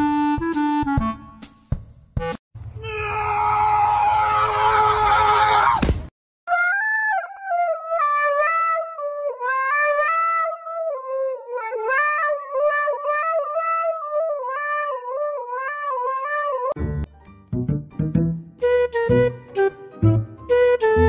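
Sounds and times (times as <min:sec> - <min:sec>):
dog howling into microphone: 0:06.6 - 0:16.8.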